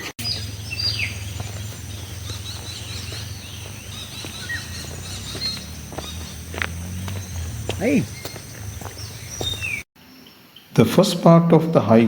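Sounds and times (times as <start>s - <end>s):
birds calling: 0.0s - 10.7s
low steady hum: 0.2s - 9.5s
high insect drone: 0.2s - 9.8s.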